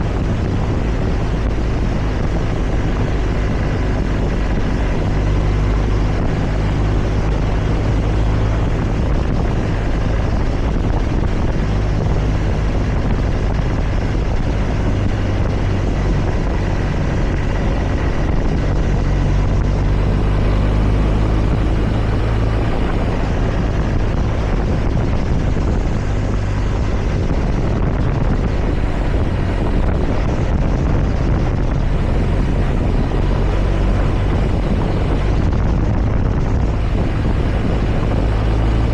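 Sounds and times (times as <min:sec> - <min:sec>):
wind and road noise: 0:00.0 - 0:38.9
motorcycle engine running: 0:19.7 - 0:23.5, 0:28.3 - 0:38.9.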